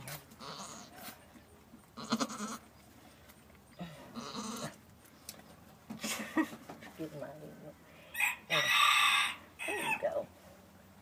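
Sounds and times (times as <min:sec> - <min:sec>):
goat bleating: 0:00.3 - 0:01.0, 0:01.9 - 0:02.7, 0:04.1 - 0:04.8.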